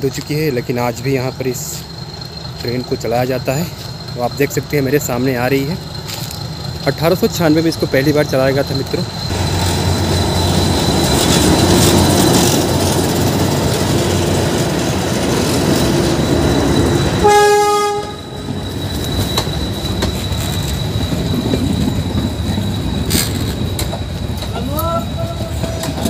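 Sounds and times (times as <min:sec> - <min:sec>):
diesel locomotive engine: 0:00.0 - 0:26.0
wheels clattering on rails: 0:00.1 - 0:26.0
train horn blast: 0:17.2 - 0:18.5.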